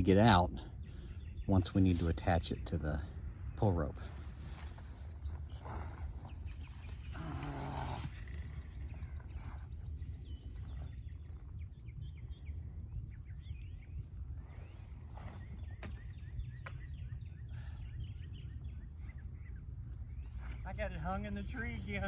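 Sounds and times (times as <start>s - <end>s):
wind rumble on microphone: 0.0s - 22.0s
faint bird chirps: 0.7s - 22.0s
low moaning call: 6.9s - 8.7s.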